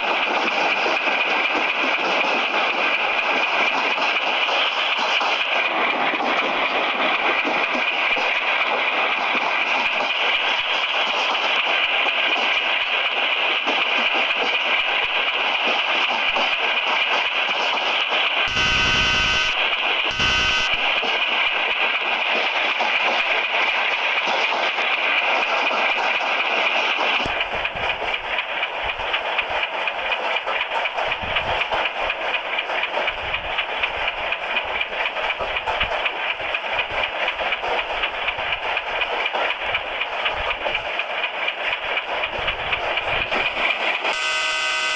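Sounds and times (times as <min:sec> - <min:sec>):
train rail noise: 0:00.0 - 0:44.9
train horn blasts: 0:18.5 - 0:20.8, 0:44.1 - 0:44.9.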